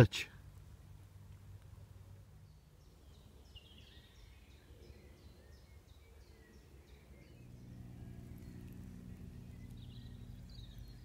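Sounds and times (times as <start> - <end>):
low outdoor rumble: 0.0 - 5.4, 6.2 - 11.0
faint birdsong: 0.0 - 11.0.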